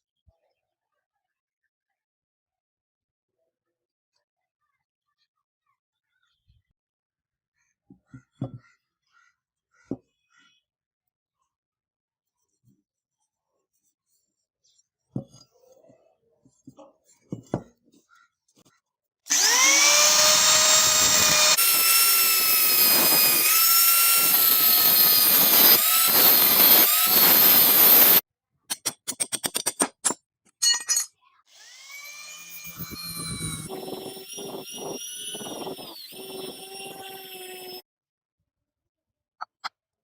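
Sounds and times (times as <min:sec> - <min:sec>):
power tool motor whine: 0:19.3 - 0:28.2, 0:31.5 - 0:37.8.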